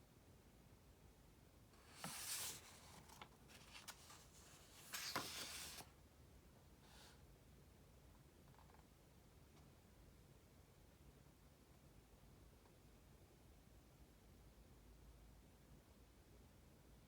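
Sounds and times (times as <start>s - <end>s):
book pages rustling: 1.8s - 5.9s.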